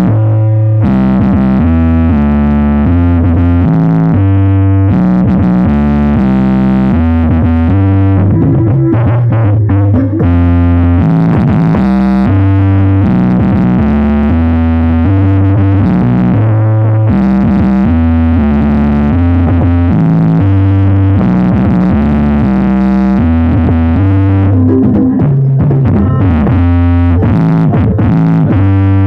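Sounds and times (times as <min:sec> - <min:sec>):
electronic dance music: 0:00.0 - 0:29.0.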